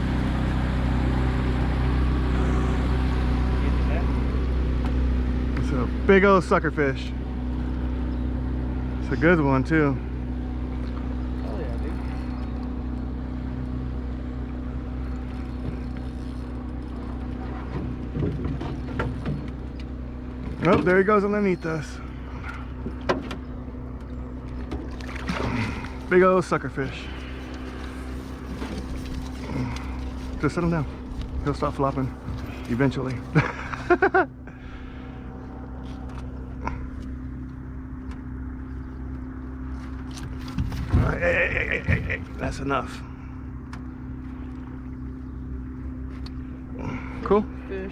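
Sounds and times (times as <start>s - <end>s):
outboard motor running: 0.0s - 47.9s
fish flopping in boat: 10.8s - 20.9s, 22.1s - 26.2s, 26.8s - 33.6s.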